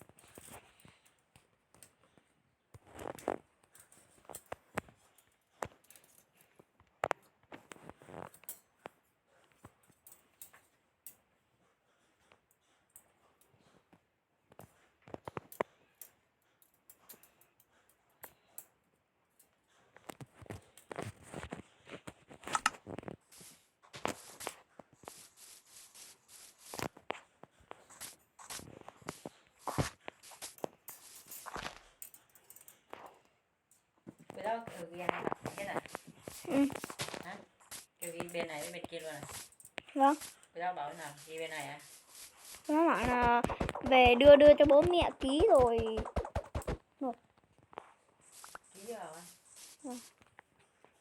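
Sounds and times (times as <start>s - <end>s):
rubbing and scratching handling noise: 0.0s - 18.5s, 19.4s - 51.0s
clicks and taps of small objects: 42.7s - 46.8s.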